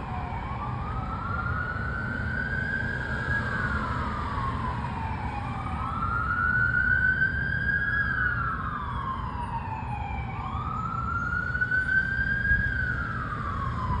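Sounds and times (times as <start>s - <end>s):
engine and road rumble: 0.0s - 14.0s
sirens wailing: 0.0s - 14.0s.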